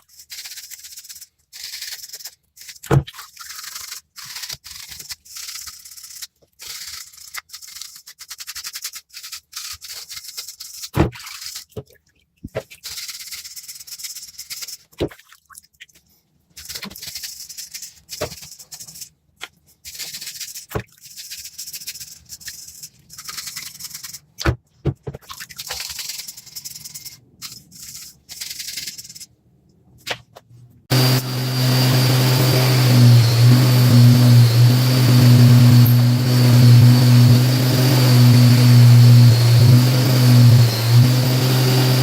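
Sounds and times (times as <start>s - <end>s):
power tool motor humming: 30.9s - 42.0s.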